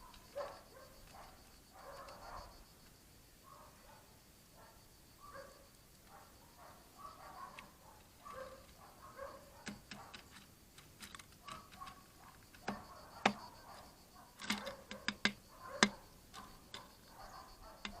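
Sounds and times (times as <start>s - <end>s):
woodpecker tapping on wood: 7.4s - 18.0s.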